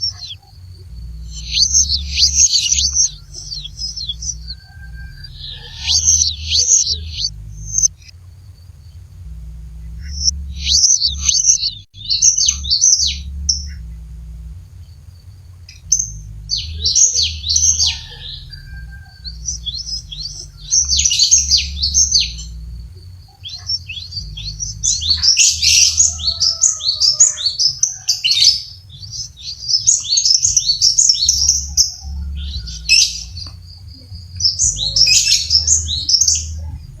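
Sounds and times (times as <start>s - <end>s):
bird singing high chirping notes: 0.0s - 8.1s, 9.0s - 14.7s, 15.7s - 37.0s.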